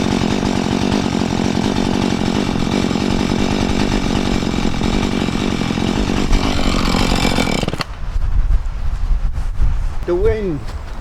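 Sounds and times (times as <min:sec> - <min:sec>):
chainsaw running at high revs: 0:00.0 - 0:07.9.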